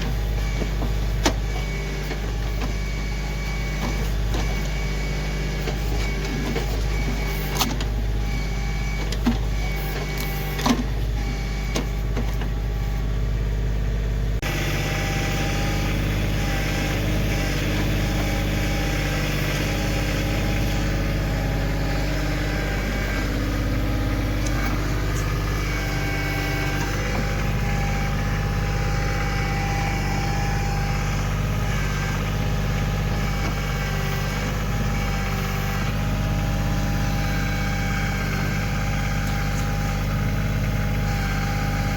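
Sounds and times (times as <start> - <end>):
tractor diesel engine running: 0.0 - 41.9
whine shifting in pitch: 14.4 - 37.0.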